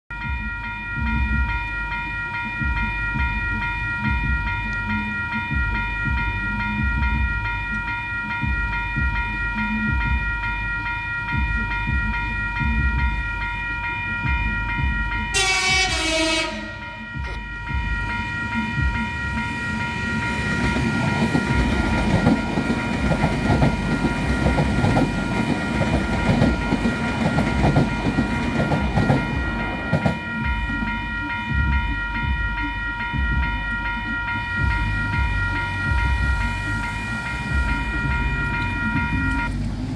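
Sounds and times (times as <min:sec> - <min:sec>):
level crossing alarm: 0:00.1 - 0:39.6
train wheels rumbling and rattling: 0:00.3 - 0:39.9
train horn blast: 0:15.3 - 0:17.4.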